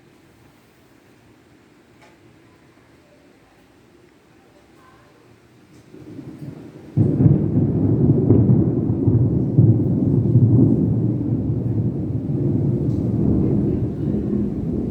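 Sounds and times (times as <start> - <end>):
rolling thunder: 5.9 - 14.9.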